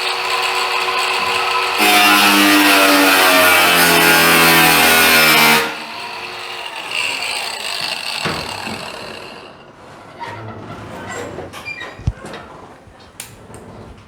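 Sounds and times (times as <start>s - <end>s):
power tool grinding metal: 0.0s - 9.8s
knocks: 8.2s - 9.0s.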